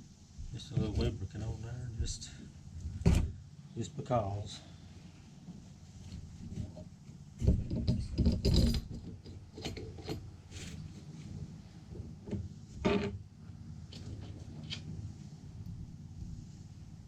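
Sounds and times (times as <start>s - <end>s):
metal parts rubbing and scraping: 7.4s - 11.4s.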